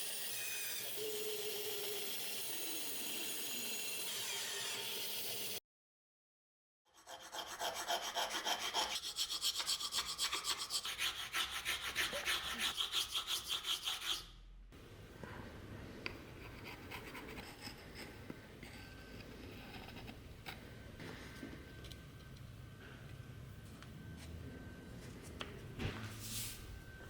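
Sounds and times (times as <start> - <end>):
hand sanding wood: 7.4 - 14.2.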